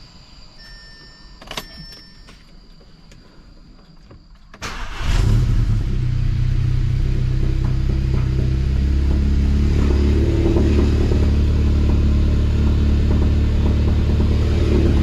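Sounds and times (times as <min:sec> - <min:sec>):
faint high whine: 0:00.0 - 0:04.9
car engine cranking and running: 0:03.9 - 0:15.0.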